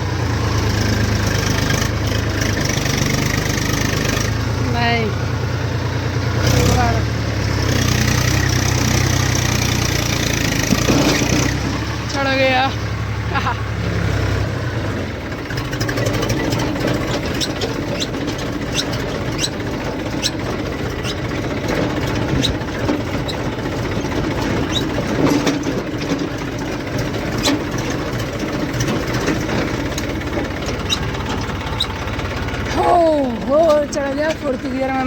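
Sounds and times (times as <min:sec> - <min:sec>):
tractor engine rumbling: 0:00.0 - 0:35.0
rattling clicks: 0:15.6 - 0:32.8.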